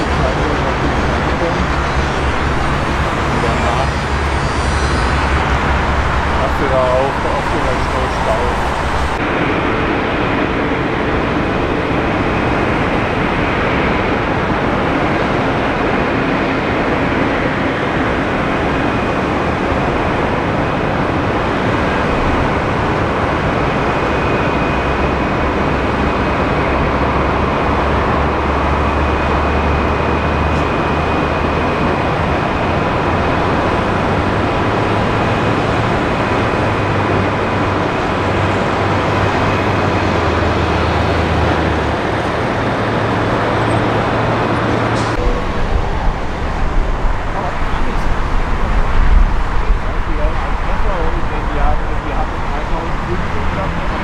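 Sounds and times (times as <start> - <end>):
faint high whine: 0.0 - 9.5
jet airliner engines running: 0.0 - 54.0.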